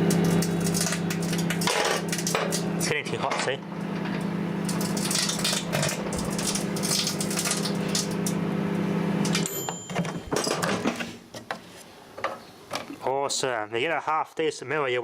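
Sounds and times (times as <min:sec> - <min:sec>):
microwave oven humming: 0:00.0 - 0:10.9
mirror crackling and snapping: 0:03.8 - 0:08.4.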